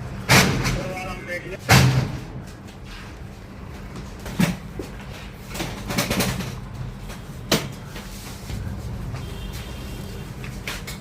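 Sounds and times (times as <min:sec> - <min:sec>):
cargo knocks and bangs: 0:00.2 - 0:01.0.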